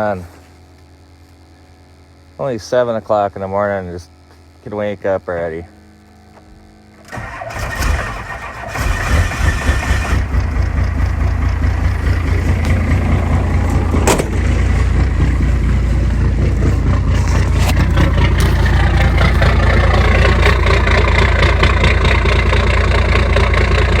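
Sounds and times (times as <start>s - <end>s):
starter motor cranking: 7.0s - 24.0s
diesel engine idling: 7.1s - 24.0s.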